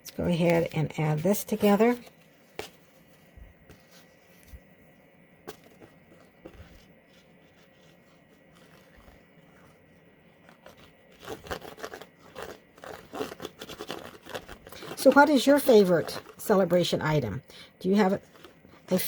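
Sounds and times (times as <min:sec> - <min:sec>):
paper rustling and scraping: 0:05.4 - 0:17.2.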